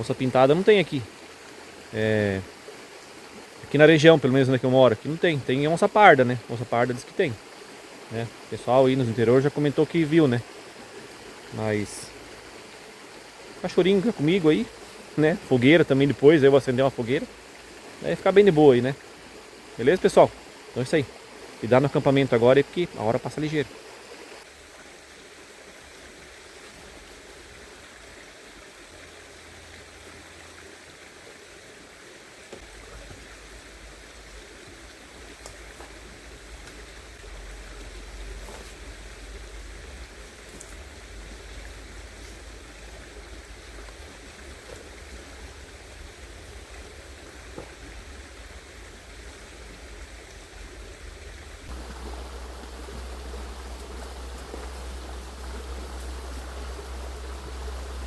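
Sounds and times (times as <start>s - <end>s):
river flowing: 0.0s - 58.0s.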